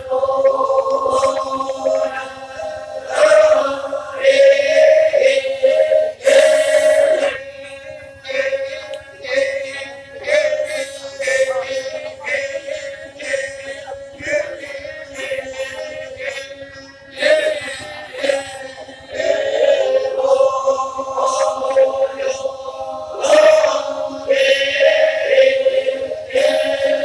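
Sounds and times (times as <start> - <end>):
group chanting over a held note: 0.0 - 27.0.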